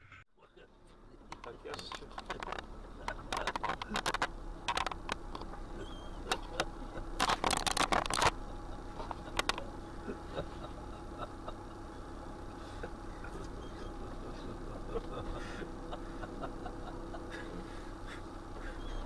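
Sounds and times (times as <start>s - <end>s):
steady low hum: 0.0s - 19.0s
close clicking and rustling: 1.2s - 9.8s.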